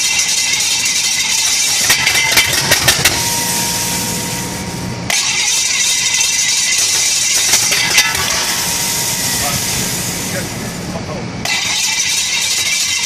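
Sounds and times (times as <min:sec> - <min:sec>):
engine cranking: 0:01.5 - 0:03.2.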